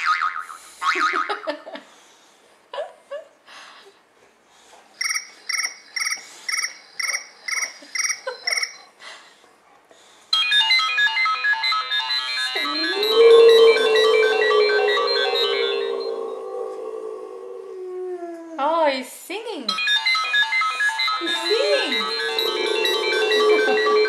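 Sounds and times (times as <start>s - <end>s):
melodic phone ringtone: 10.4s - 16.2s, 19.8s - 24.0s
dog howling: 12.6s - 18.6s, 21.8s - 24.0s
phone ringtone repeated tone: 21.0s - 24.0s.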